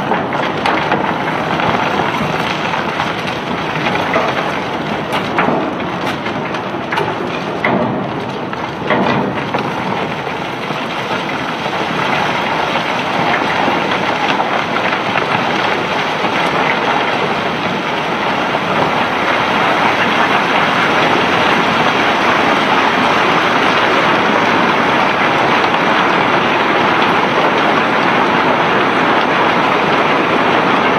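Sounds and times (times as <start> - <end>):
sharp knocks: 0.0 - 10.5
cobblestones pouring and rattling: 0.0 - 30.9.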